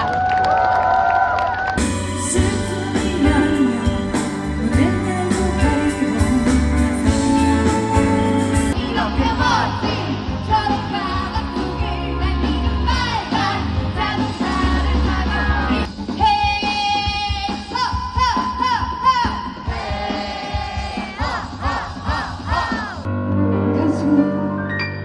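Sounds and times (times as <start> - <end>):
live rock band playing: 1.8 - 11.9
woman singing lead: 1.8 - 20.2.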